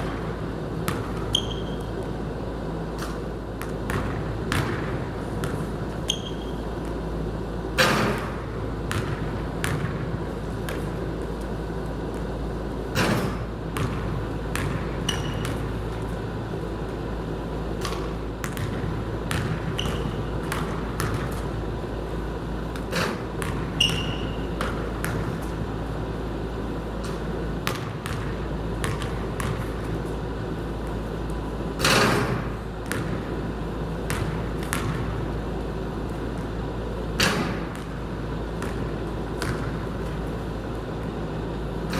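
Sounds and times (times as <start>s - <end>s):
basketball bouncing: 0.0s - 2.2s, 3.0s - 7.1s, 7.8s - 11.4s, 13.0s - 16.1s, 17.8s - 21.6s, 22.7s - 25.7s, 27.0s - 30.1s, 31.8s - 35.4s, 36.2s - 40.4s
steady low hum: 0.0s - 41.9s
sneaker squeaks: 0.9s - 2.1s, 5.4s - 7.0s, 14.6s - 16.0s, 17.9s - 21.5s, 22.9s - 25.5s.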